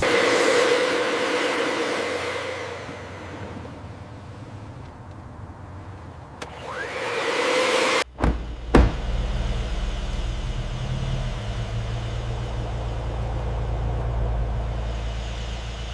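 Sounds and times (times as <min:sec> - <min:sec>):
hissing rush: 0:00.0 - 0:15.9
car engine idling: 0:00.9 - 0:06.7, 0:08.1 - 0:15.9
sharp knocks: 0:08.1 - 0:09.5.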